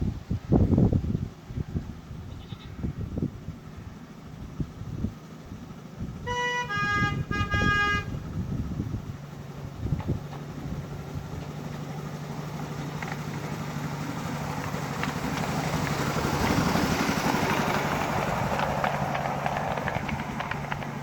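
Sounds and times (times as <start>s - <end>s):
miniature locomotive engine running: 6.4s - 21.0s.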